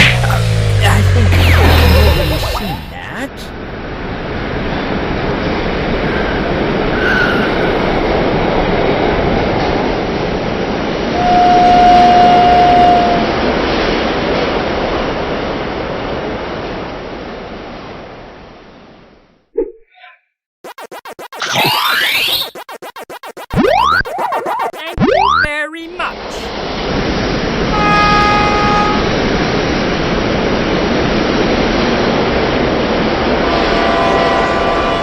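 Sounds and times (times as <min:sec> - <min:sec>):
train rumbling past: 0:00.0 - 0:19.1, 0:26.5 - 0:35.0
train whistle blast: 0:11.1 - 0:13.5, 0:27.7 - 0:29.2, 0:33.4 - 0:35.0.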